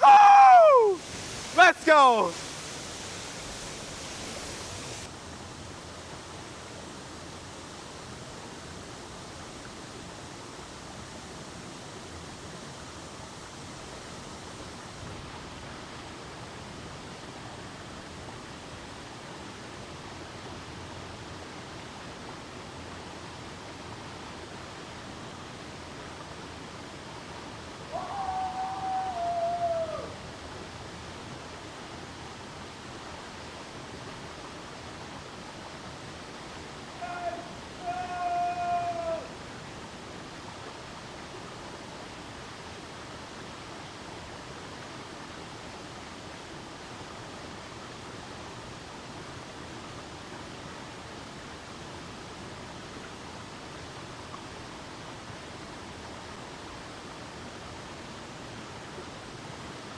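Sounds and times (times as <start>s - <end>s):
long high call: 0.0s - 5.1s, 27.9s - 30.3s, 36.9s - 39.4s
waterfall rushing: 0.0s - 5.1s.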